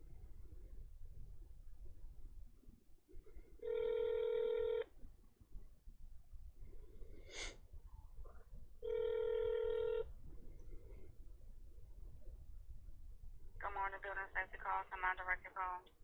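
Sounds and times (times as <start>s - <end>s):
telephone ringing tone: 3.6s - 4.9s, 8.8s - 10.1s.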